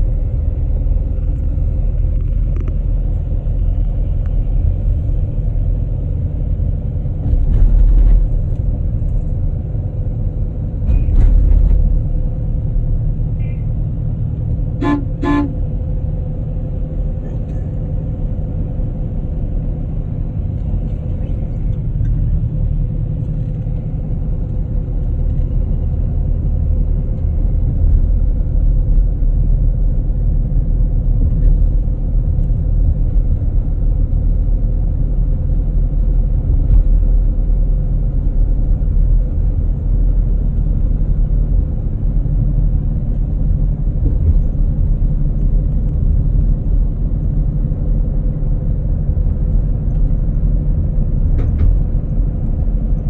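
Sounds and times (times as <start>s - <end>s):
low vehicle rumble: 0.0s - 53.0s
short horn toots: 14.8s - 15.6s.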